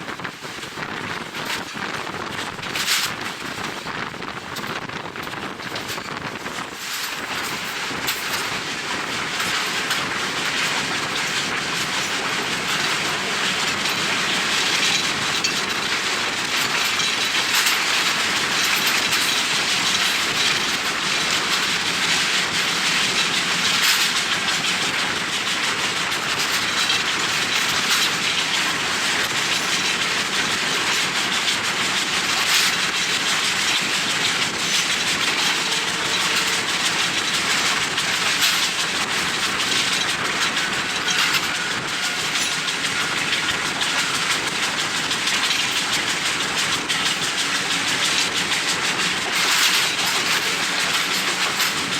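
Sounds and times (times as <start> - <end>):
track clacks: 0.0 - 51.9
train wheel and rail noise: 0.0 - 51.9
wind noise on microphone: 0.0 - 51.9.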